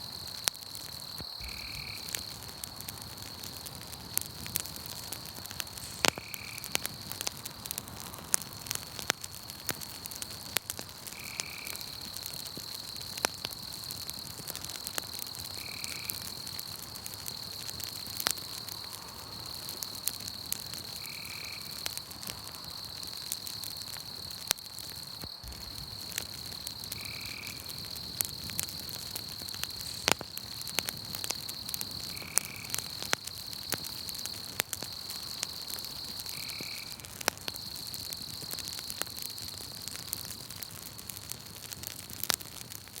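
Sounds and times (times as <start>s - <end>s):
campfire crackling and popping: 0.0s - 43.0s
frogs and insects chorus: 0.8s - 2.4s, 5.8s - 7.3s, 11.1s - 12.4s, 15.5s - 16.4s, 20.9s - 23.1s, 23.9s - 39.6s.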